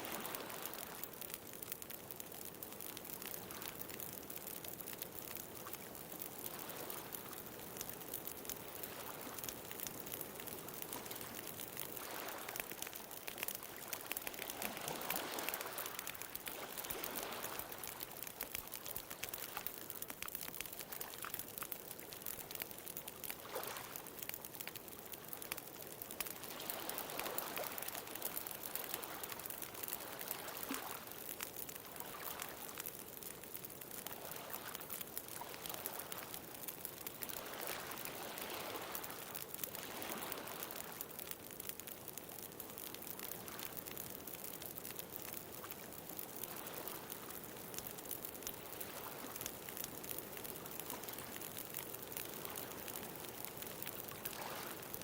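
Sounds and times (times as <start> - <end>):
ocean waves: 0.0 - 1.0, 8.6 - 19.7, 26.2 - 31.1, 37.2 - 41.0, 54.2 - 55.0
bonfire crackling: 0.0 - 55.0.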